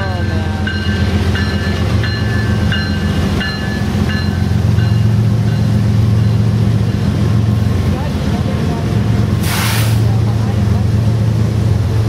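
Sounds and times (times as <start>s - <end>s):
locomotive bell ringing: 0.0s - 8.9s
diesel locomotive rumbling: 0.0s - 12.0s.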